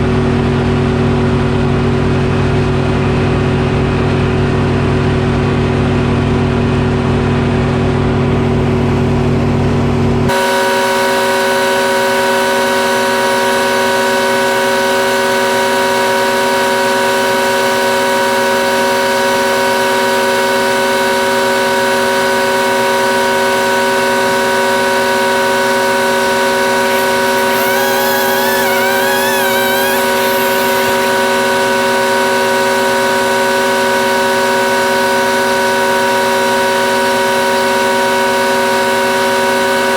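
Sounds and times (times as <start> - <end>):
sawmill whine: 26.4 - 33.1
wavering tone: 26.9 - 31.2.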